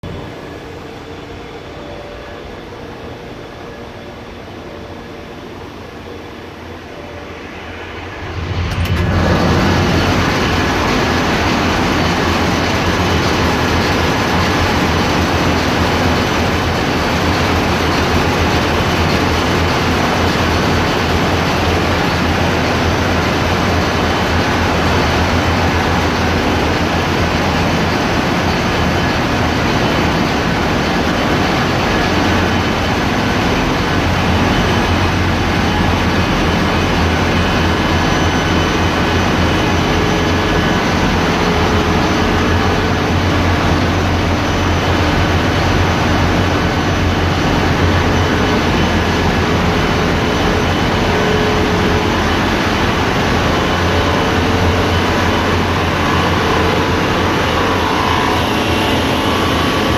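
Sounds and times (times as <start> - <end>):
engine room machinery roar: 0.0 - 59.9.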